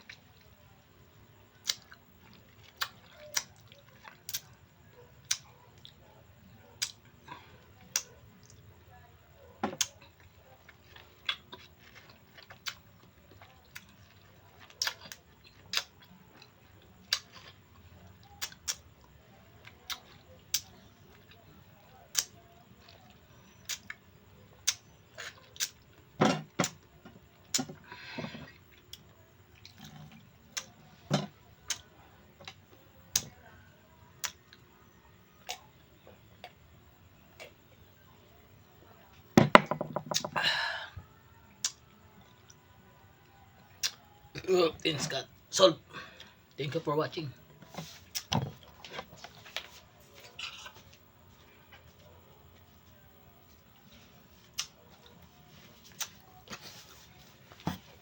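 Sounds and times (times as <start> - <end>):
mouth smacks and chewing clicks: 1.6 - 4.6, 6.8 - 7.0, 18.2 - 18.8, 24.6 - 25.9, 34.2 - 34.6, 41.6 - 42.5, 43.6 - 44.0, 54.4 - 55.2, 55.8 - 56.6.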